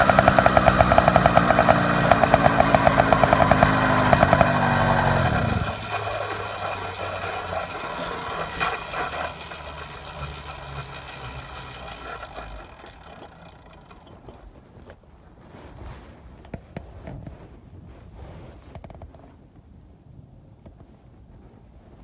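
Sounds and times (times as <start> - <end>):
motorized bicycle engine running: 0.0 - 14.7.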